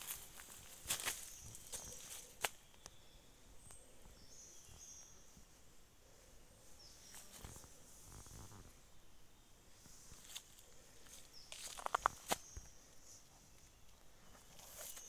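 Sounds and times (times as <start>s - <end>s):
faint high-pitched bird calls: 0.0s - 5.6s.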